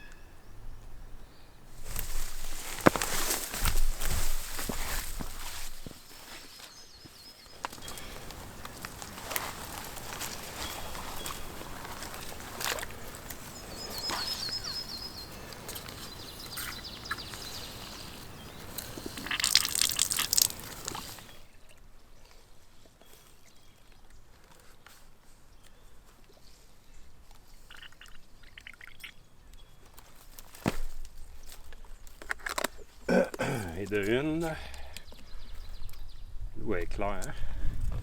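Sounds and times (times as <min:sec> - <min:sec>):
bird trill: 0:00.0 - 0:01.6, 0:10.3 - 0:19.9
rustling and scuffing: 0:01.7 - 0:21.4, 0:29.9 - 0:32.2.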